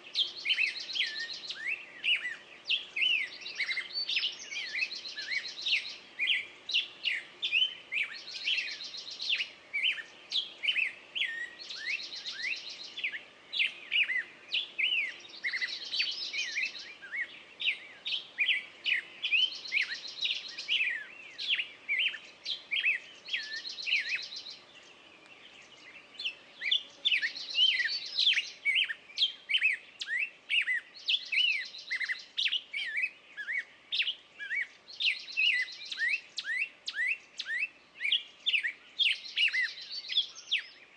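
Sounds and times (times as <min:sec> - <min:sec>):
songbirds singing and chirping: 0:00.0 - 0:40.9.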